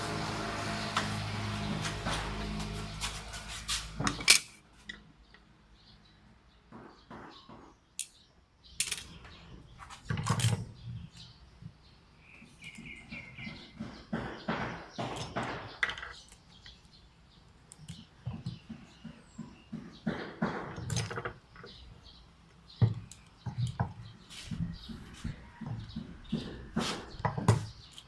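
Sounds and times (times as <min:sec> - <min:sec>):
small parts clicking and scraping: 0:08.8 - 0:09.3.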